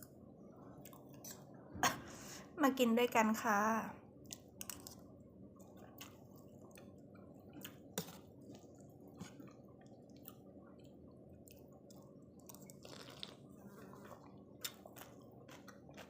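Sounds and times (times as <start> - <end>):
person eating noodle soup: 5.8 - 16.0.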